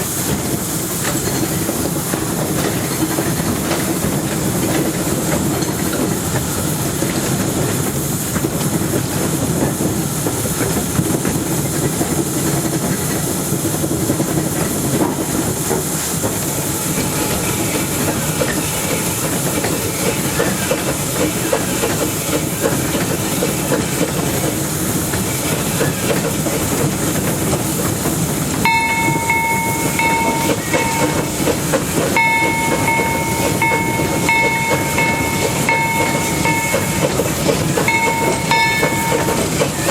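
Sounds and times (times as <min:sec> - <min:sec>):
steam hiss: 0:00.0 - 0:39.9
wheels clattering on rail: 0:00.0 - 0:39.9
high-pitched tone: 0:28.7 - 0:39.9.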